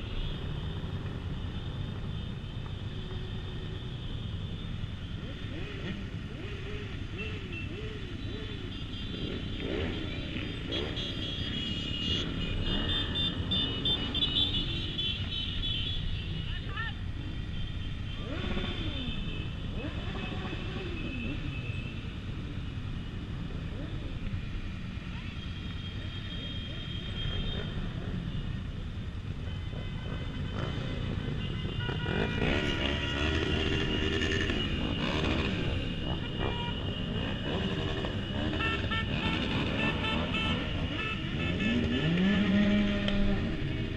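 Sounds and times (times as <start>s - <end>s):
motorcycle engines revving: 0.0s - 43.9s
horns tooting long notes: 30.5s - 43.5s.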